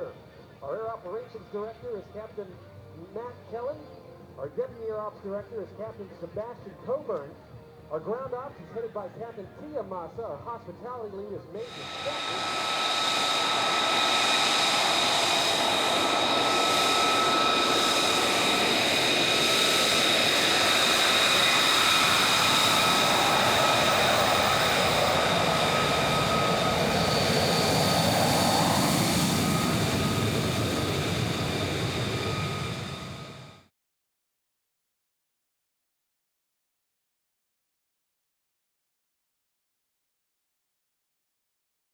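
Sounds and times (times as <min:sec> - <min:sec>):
jet engine roaring: 0:11.6 - 0:33.6.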